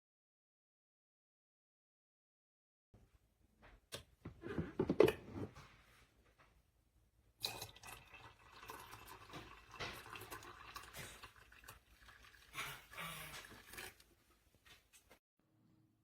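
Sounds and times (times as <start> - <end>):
liquid running and splashing: 7.5 - 14.2.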